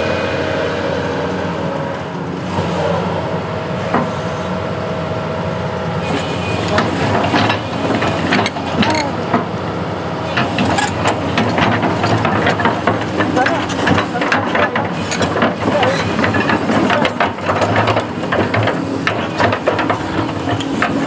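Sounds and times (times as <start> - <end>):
construction machine engine running: 0.0 - 21.0
clicks and clanks: 6.0 - 9.6, 10.2 - 21.0.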